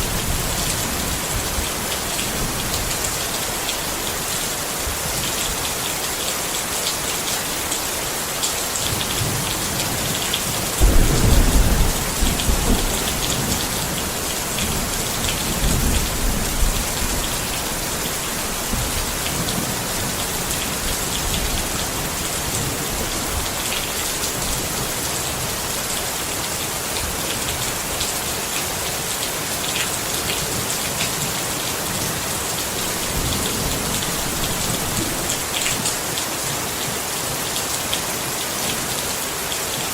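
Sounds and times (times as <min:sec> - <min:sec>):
rain falling on a tent: 0:00.0 - 0:39.9
thunder rumbling: 0:10.8 - 0:19.6.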